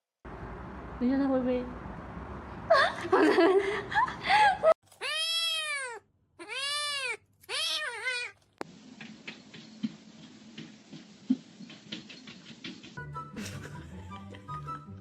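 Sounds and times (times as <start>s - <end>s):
cat meowing loudly: 5.0s - 8.4s
faint clicks and taps: 8.4s - 13.0s.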